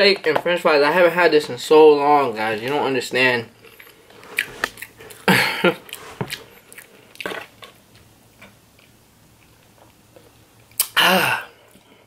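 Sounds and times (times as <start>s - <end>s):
chewing and smacking: 3.6s - 10.9s.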